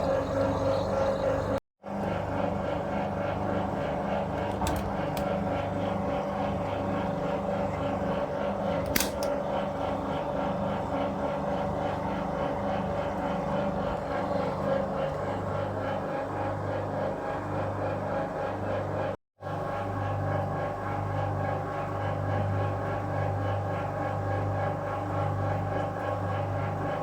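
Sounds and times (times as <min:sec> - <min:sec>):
washing machine motor hum: 0:00.0 - 0:27.0
sharp clicks: 0:08.9 - 0:09.3.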